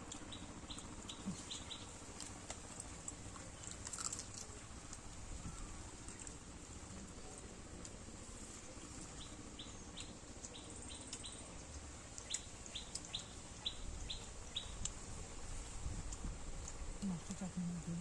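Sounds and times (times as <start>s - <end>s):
bird chirping: 0.3s - 2.0s, 9.1s - 14.9s.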